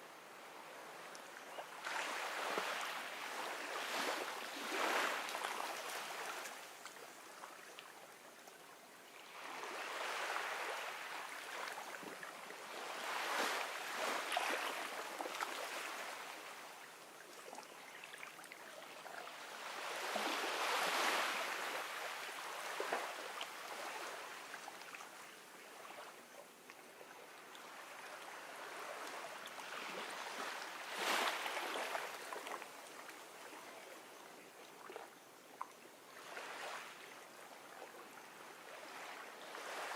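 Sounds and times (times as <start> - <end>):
ocean waves washing onto beach: 1.8 - 6.9, 9.2 - 16.7, 19.3 - 24.8, 27.6 - 33.4.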